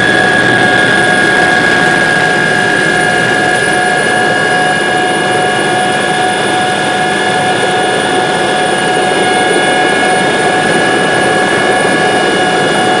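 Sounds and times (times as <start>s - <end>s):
helicopter engine and rotor noise: 0.0s - 13.0s
high whine: 0.0s - 13.0s.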